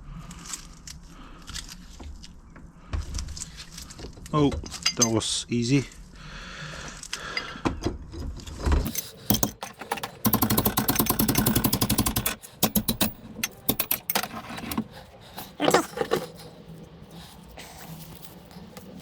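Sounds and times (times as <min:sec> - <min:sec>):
metal tools clinking and knocking: 0:04.5 - 0:05.4, 0:08.8 - 0:14.9
rapid rattling clicks: 0:08.9 - 0:14.8.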